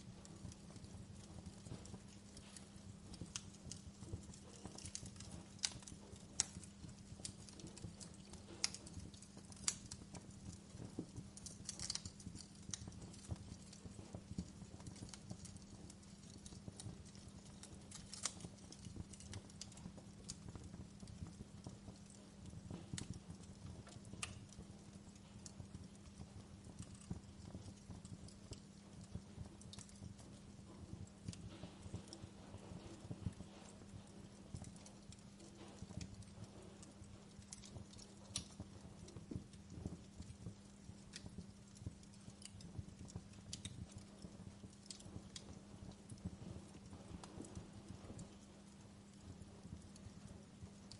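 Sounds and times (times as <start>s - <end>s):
faint low hum: 0.0s - 50.9s
wood fire crackling and popping: 0.0s - 50.9s.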